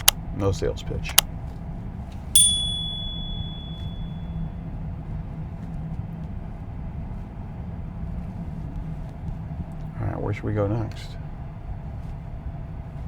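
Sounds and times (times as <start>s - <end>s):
high ding: 2.4s - 4.2s.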